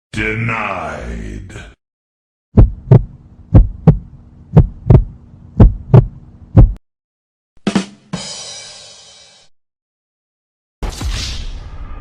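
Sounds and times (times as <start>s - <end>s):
heartbeat thumps: 2.6s - 6.8s
steady low hum: 2.6s - 6.8s.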